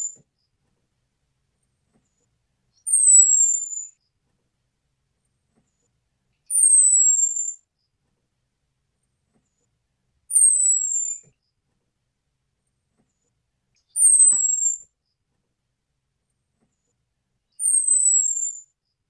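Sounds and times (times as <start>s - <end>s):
thrush whistled call: 14.0s - 14.8s.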